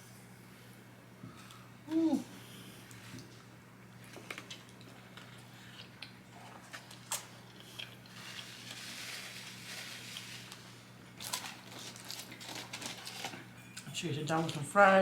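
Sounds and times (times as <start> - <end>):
steady low hum: 0.0 - 12.7
person chewing: 4.3 - 8.7.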